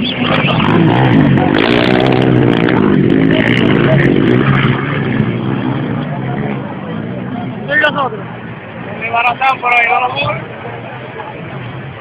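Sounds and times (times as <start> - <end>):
atv engines revving: 0.0 - 12.0.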